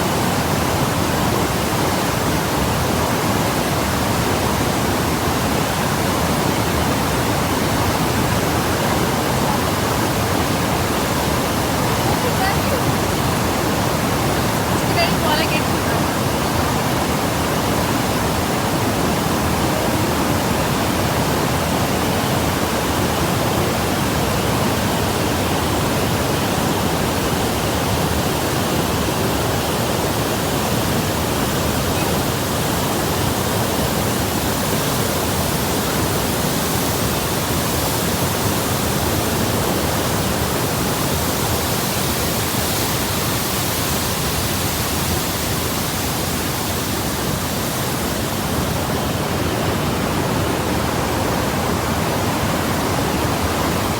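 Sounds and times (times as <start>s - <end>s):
rushing water: 0.0s - 53.9s.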